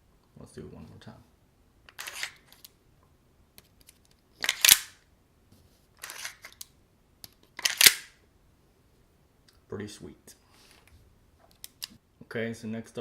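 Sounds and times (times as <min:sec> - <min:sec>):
metallic magazine clacks: 0:01.9 - 0:02.7, 0:03.8 - 0:05.0, 0:06.0 - 0:08.2.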